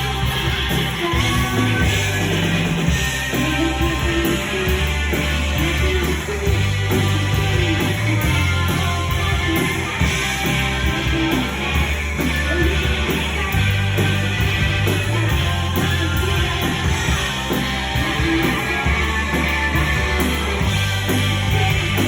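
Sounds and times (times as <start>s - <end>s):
bass guitar: 0.0s - 22.0s
electric guitars: 0.0s - 22.0s
steady drumbeat: 0.0s - 22.0s.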